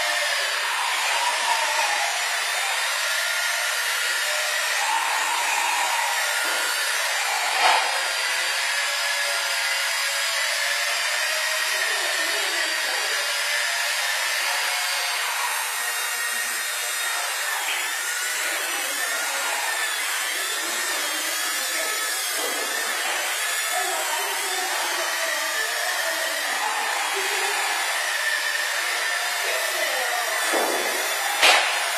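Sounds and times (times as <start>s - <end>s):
rc helicopter rotor whine: 0.0s - 31.9s.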